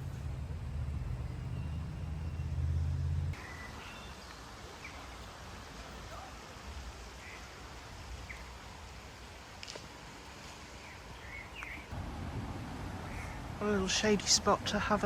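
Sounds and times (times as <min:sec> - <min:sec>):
background hiss: 0:00.0 - 0:15.0
bird chirps: 0:01.0 - 0:05.1.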